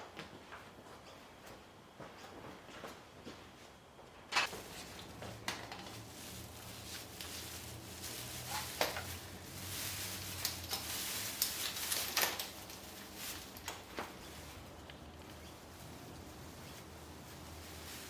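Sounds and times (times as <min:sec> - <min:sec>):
branches rustling: 0:04.4 - 0:18.0.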